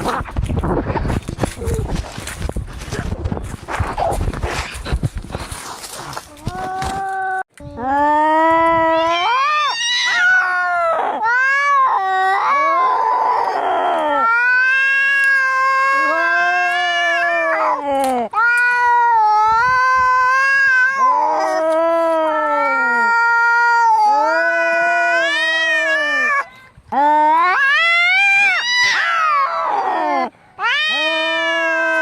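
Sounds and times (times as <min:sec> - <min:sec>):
cats yowling: 0:08.8 - 0:32.0.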